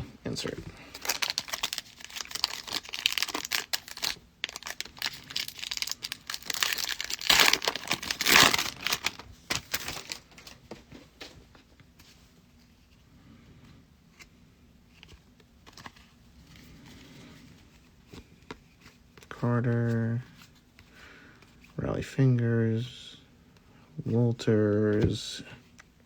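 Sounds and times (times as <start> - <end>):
foil wrapper tearing and crinkling: 0.9 - 10.5.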